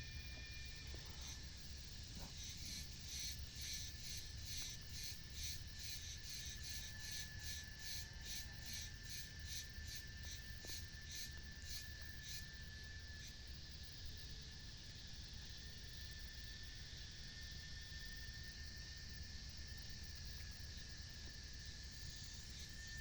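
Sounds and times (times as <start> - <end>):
steady high whine: 0.0 - 14.1
insects chirping: 0.0 - 23.0.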